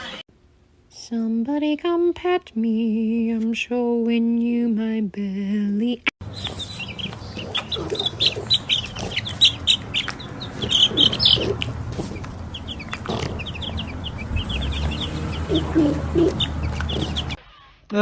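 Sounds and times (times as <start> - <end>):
chickens clucking: 6.2 - 17.4
chicks peeping: 6.2 - 17.4.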